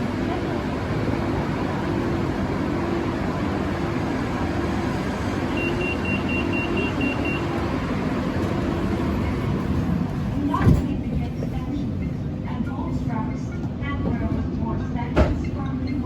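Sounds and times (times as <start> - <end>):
train car rumbling: 0.0 - 16.0
short high-pitched beeps: 5.6 - 7.5.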